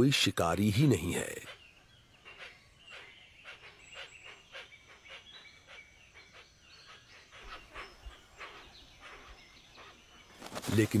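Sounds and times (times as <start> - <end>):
short sharp bird calls: 0.9 - 11.0.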